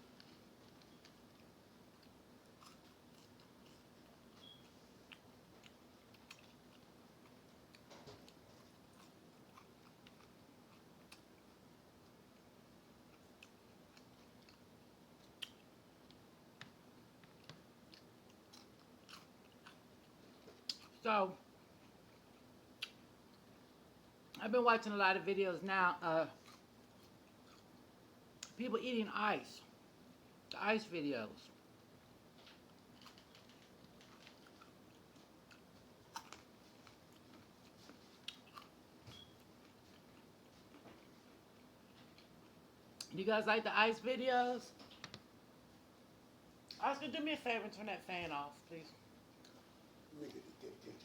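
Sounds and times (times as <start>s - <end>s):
faint fan hum: 0.0s - 51.0s
chewing crunches and mouth clicks: 0.1s - 21.0s, 21.7s - 23.6s, 26.4s - 28.6s, 32.3s - 43.1s.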